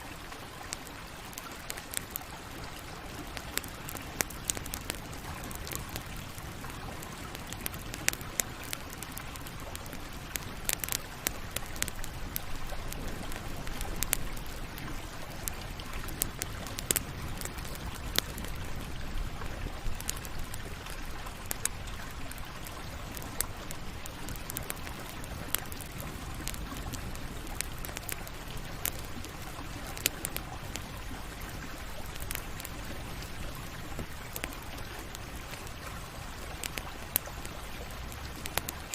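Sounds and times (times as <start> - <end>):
campfire crackling and hissing: 0.0 - 38.9.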